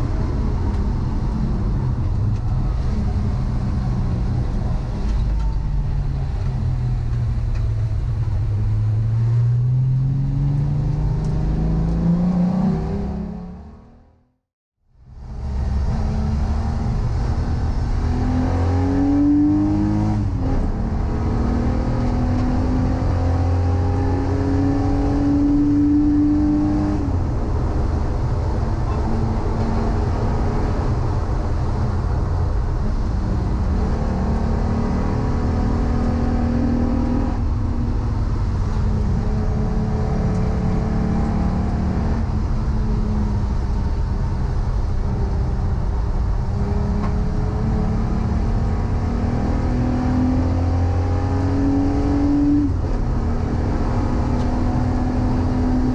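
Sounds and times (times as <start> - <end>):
car engine revving under load: 0.0 - 14.3, 15.2 - 55.9.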